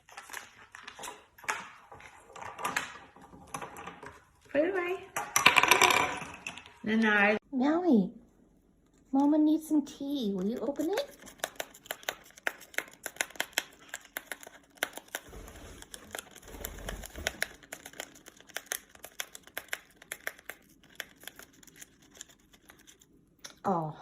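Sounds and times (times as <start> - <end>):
parrot tearing a wrapper: 10.6 - 23.2.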